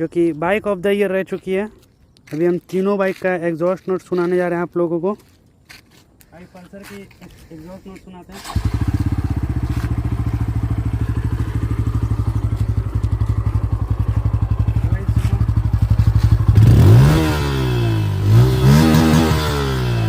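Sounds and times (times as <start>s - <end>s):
motorcycle engine idling: 8.4s - 18.2s.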